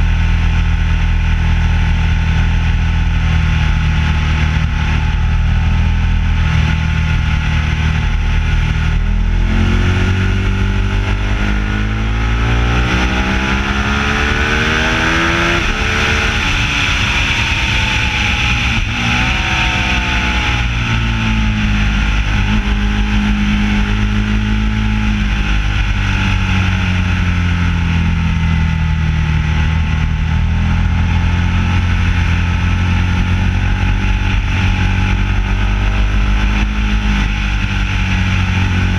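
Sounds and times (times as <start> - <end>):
motorcycle engine accelerating: 0.0 - 38.9
wind rushing: 5.7 - 24.4.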